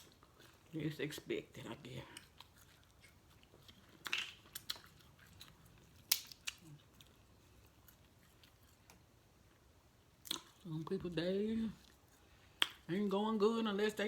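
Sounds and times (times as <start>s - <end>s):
soft chewing: 0.0s - 13.1s
shell cracks and clicks: 6.1s - 6.6s.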